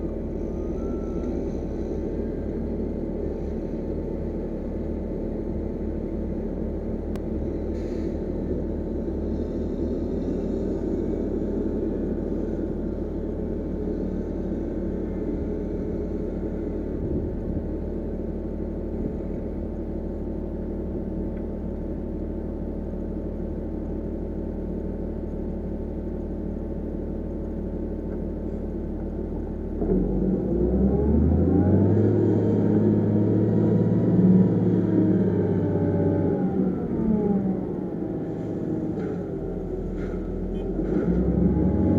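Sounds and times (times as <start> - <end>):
heavy machinery diesel engine revving: 28.7 - 41.9.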